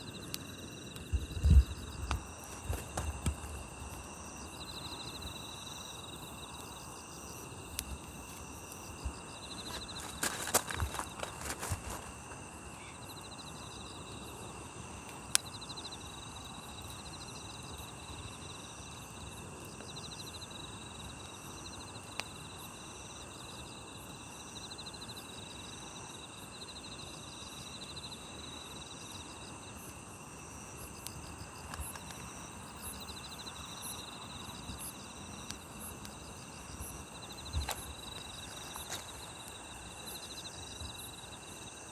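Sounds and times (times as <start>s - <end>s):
campfire crackling and popping: 0.0s - 12.7s, 13.9s - 19.9s, 30.6s - 40.2s
insects chirping: 0.0s - 41.9s.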